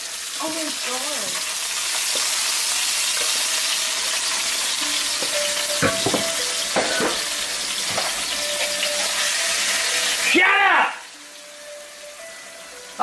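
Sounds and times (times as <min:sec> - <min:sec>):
onions sizzling in a pan: 0:00.0 - 0:13.0
sharp knocks: 0:05.8 - 0:07.2.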